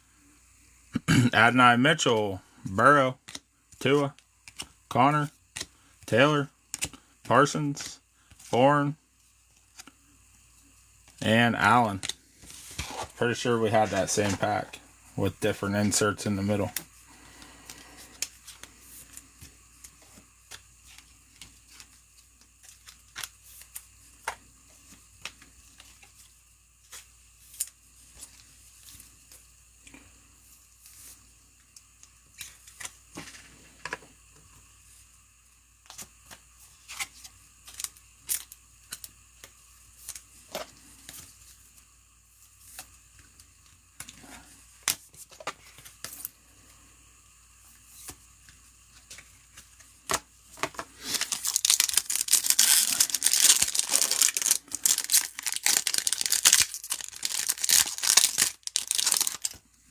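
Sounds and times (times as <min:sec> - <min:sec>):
cards clicking and tapping: 0:03.2 - 0:04.7, 0:06.7 - 0:07.0
wrappers rustling: 0:51.0 - 0:59.6.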